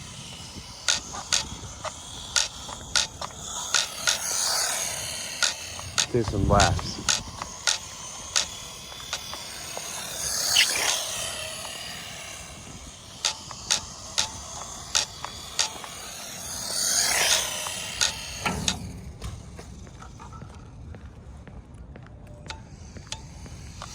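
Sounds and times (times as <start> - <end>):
rc truck electric motor whining: 0.0 - 20.3, 22.6 - 23.9
sharp clicks: 0.8 - 18.7.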